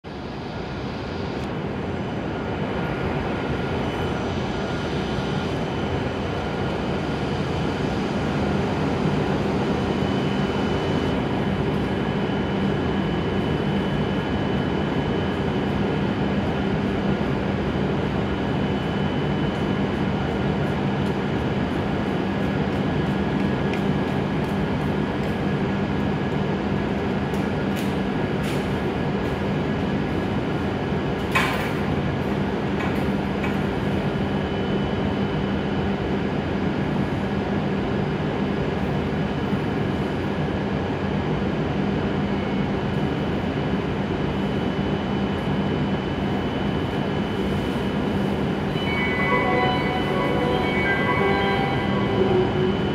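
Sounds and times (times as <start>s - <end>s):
train equipment humming: 7.6s - 34.4s, 46.2s - 52.9s.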